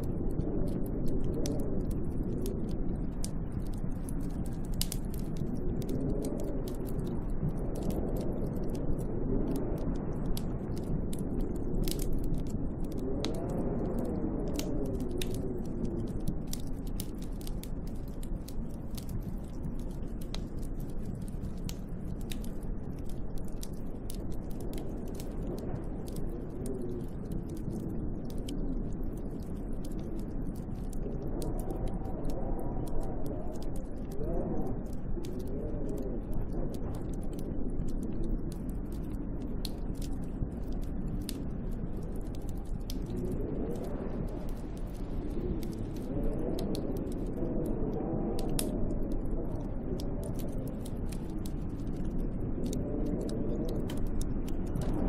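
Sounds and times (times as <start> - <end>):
small sharp ticks and clicks: 0.0 - 55.0
wind howling in gusts: 0.0 - 55.0.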